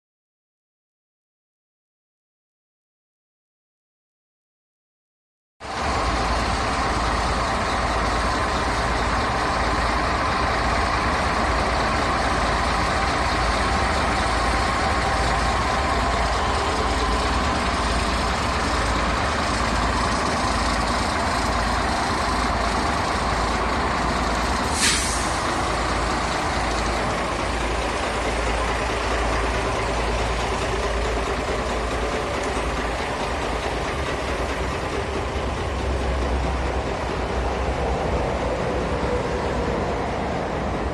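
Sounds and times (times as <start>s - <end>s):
truck diesel engine running: 5.6s - 40.9s
compressed air hiss: 24.6s - 25.6s.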